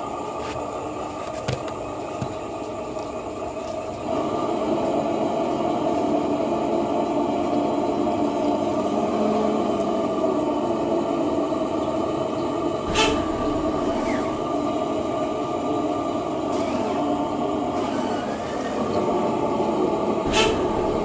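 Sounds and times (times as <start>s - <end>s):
motor humming: 12.2s - 21.0s.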